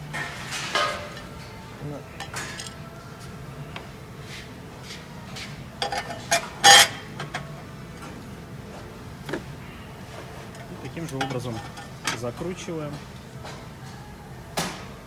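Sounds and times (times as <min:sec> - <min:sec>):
metal stove parts clinking: 0:02.2 - 0:02.8, 0:05.8 - 0:07.5, 0:10.5 - 0:12.3.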